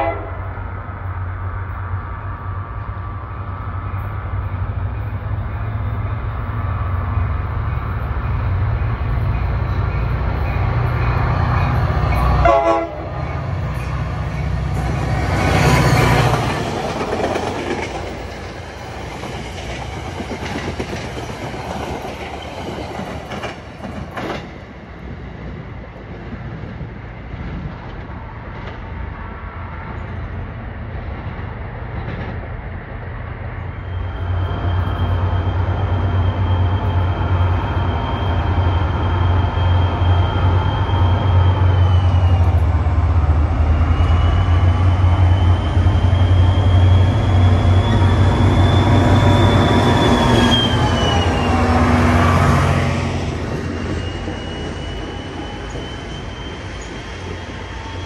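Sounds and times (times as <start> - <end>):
diesel locomotive passing: 0.0 - 58.0
steady high squeal: 3.2 - 12.4, 33.5 - 58.0
rail clatter: 7.3 - 29.1.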